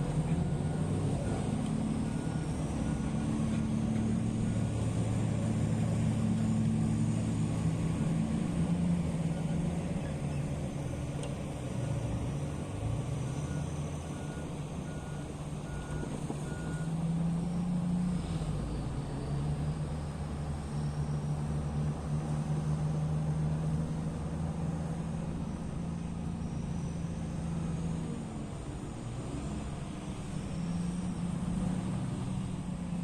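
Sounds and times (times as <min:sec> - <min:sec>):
heavy diesel engine running: 0:00.0 - 0:33.0.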